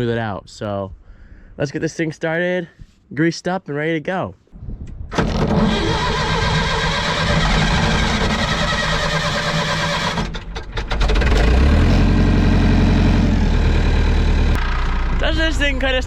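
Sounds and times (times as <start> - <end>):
diesel engine cranking and starting: 5.1 - 15.7.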